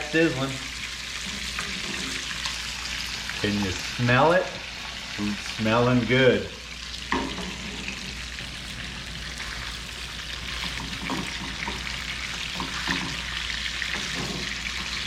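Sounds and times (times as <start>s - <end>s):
fish fillets sizzling in a pan: 0.0s - 15.0s.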